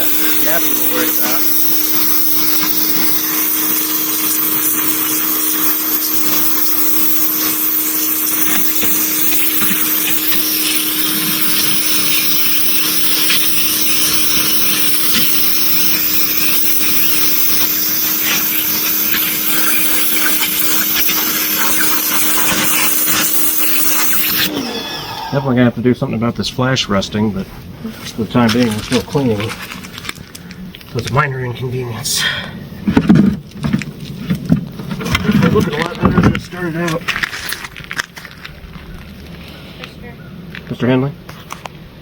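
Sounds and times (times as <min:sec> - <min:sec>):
water spray hissing: 0:00.0 - 0:25.4
pressure washer motor hum: 0:00.0 - 0:25.8.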